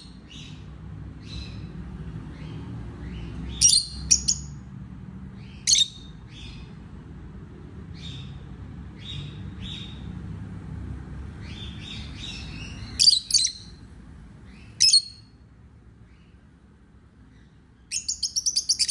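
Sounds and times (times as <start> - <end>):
soft parrot chirps: 2.4 - 4.6, 5.4 - 6.7, 11.5 - 13.8, 14.5 - 15.4, 17.3 - 18.9
parrot shrill calls: 5.7 - 6.1, 17.9 - 18.9.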